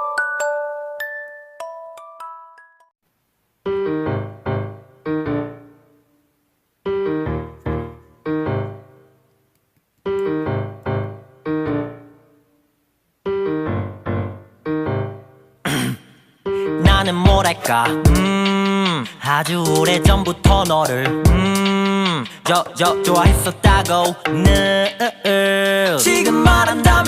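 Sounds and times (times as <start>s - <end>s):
piano chords: 3.6s - 6.2s, 6.9s - 9.2s, 10.1s - 12.6s, 13.2s - 15.6s, 16.5s - 18.6s.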